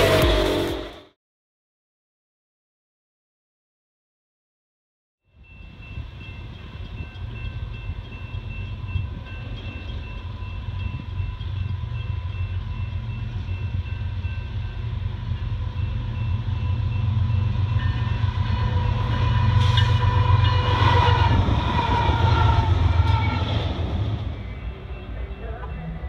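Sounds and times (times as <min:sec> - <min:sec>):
locomotive horn: 0:00.0 - 0:01.0, 0:17.8 - 0:25.7
train wheels rolling: 0:05.8 - 0:25.9.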